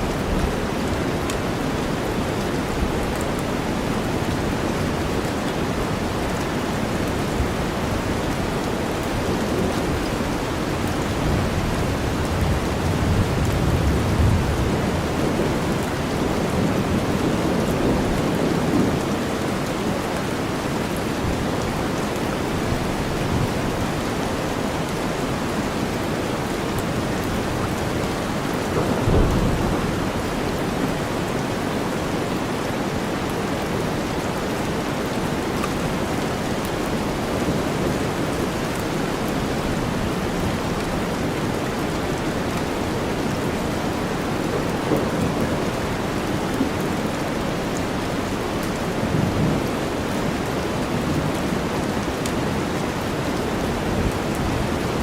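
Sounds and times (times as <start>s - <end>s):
heavy rain: 0.0s - 55.0s
low rumble of thunder: 9.2s - 19.3s, 27.2s - 31.6s.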